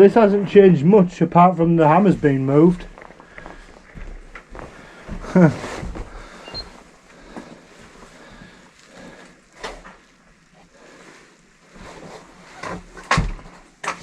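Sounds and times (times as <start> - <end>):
quiet scuffing: 0.0 - 9.0.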